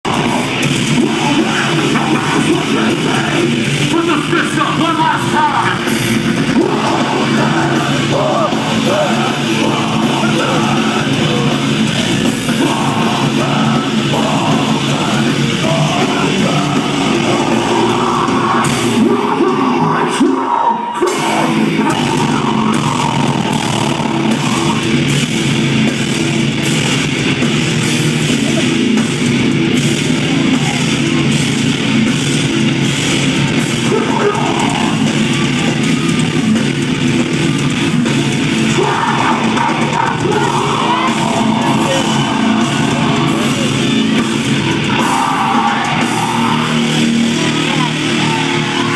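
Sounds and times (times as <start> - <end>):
person singing: 0.0 - 3.6, 4.3 - 25.0, 38.7 - 48.9
drums: 0.0 - 48.9
heavy distorted guitars: 0.0 - 48.9.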